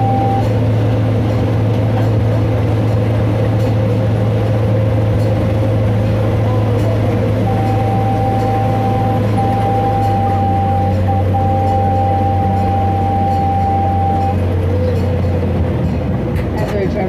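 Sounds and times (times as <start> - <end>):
thin steady whine: 0.0 - 15.4
miniature train rumbling: 0.0 - 17.0.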